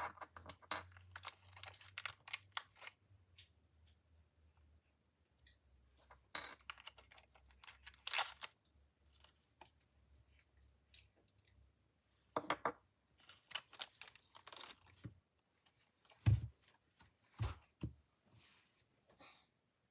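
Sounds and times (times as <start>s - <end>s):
plastic puzzle cube clicking: 0.8s - 3.0s, 6.5s - 8.7s.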